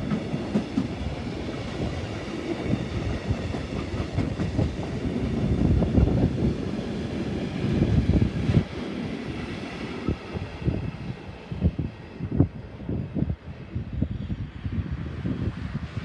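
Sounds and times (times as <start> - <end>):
freight train wheels clattering: 0.0 - 8.4.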